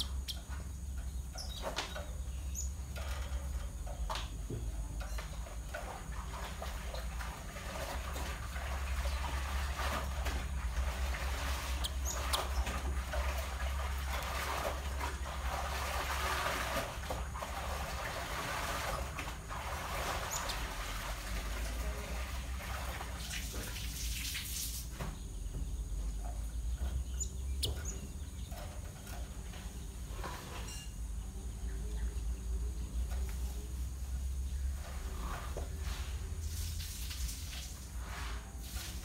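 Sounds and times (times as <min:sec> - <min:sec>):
high bird chirps: 0:11.6 - 0:12.8, 0:20.2 - 0:20.7, 0:26.4 - 0:28.6.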